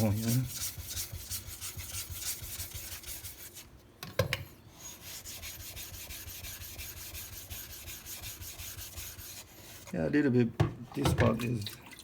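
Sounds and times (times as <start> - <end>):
whetstone rubbing strokes: 4.8 - 9.9.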